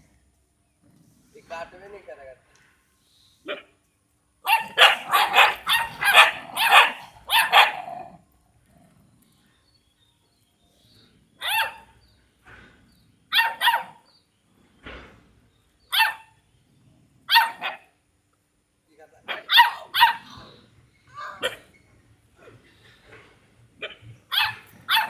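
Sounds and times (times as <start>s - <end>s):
dog barking: 4.4s - 8.1s, 11.4s - 11.9s, 13.3s - 14.0s, 15.9s - 16.3s, 17.3s - 17.9s, 19.3s - 20.4s, 21.3s - 21.7s, 23.8s - 25.0s.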